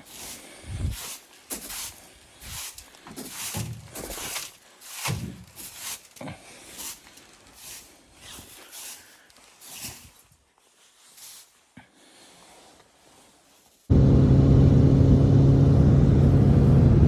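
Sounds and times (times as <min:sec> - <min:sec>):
footsteps crunching in snow: 0:00.0 - 0:06.1, 0:06.7 - 0:11.8.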